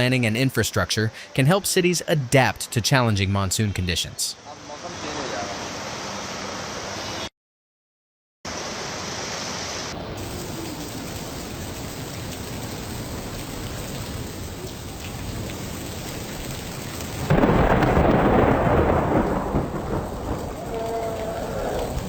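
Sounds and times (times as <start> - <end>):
heavy rain: 9.8 - 22.0
thunder rumble: 10.0 - 22.0.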